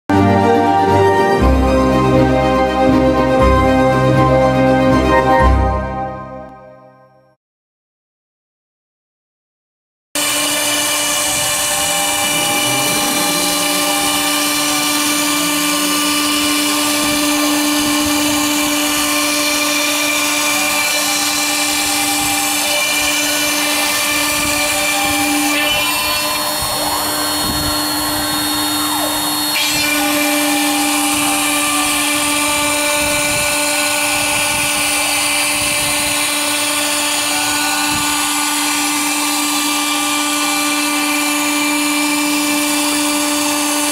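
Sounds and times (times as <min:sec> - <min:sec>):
router spindle cutting wood: 0:10.2 - 0:43.9.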